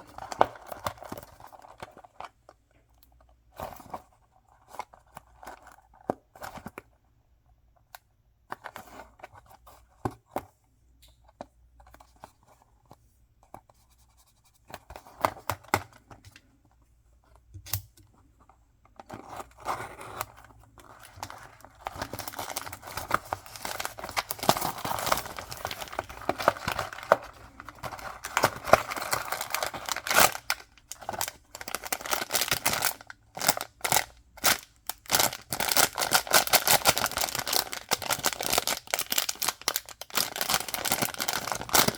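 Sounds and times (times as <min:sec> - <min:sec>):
packaging taps and rustles: 0:19.0 - 0:41.9
packaging tearing and crinkling: 0:21.0 - 0:41.9.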